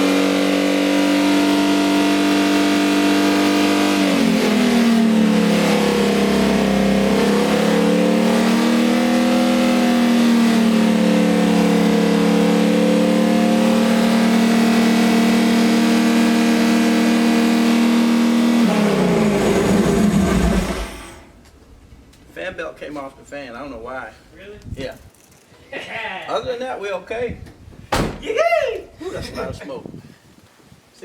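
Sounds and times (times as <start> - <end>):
car engine running at high speed: 0.0 - 21.3.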